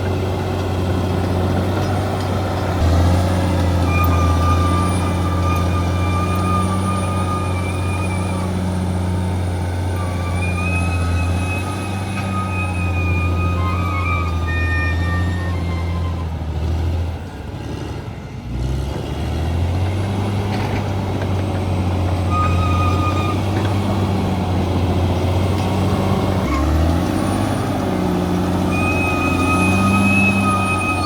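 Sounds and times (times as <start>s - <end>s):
bulldozer diesel engine: 0.0s - 31.0s
high-pitched squeals: 1.8s - 16.6s, 21.7s - 31.0s.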